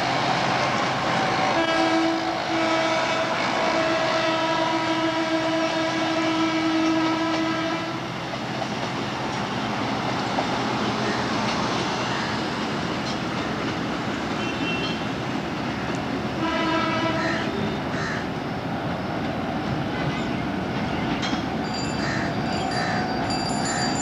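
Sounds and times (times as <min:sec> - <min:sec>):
traffic: 0:00.0 - 0:24.0
train running past: 0:00.0 - 0:24.0
train horn blast: 0:01.5 - 0:08.0, 0:16.4 - 0:17.8.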